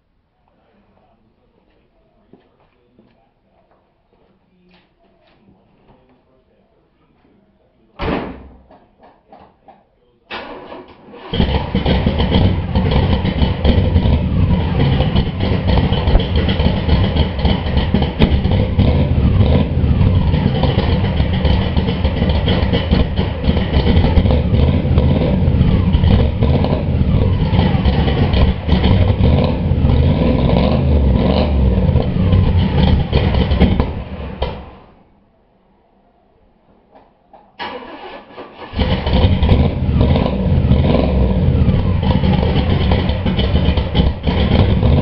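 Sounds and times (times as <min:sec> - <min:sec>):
car engine revving: 0:10.4 - 0:35.0, 0:37.6 - 0:45.0.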